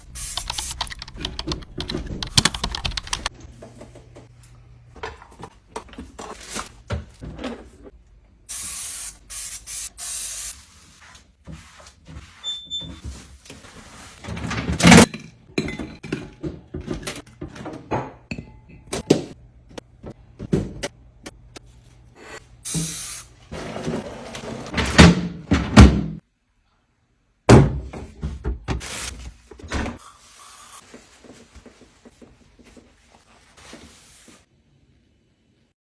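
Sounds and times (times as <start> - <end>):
spray bursts hissing: 8.5 - 10.6.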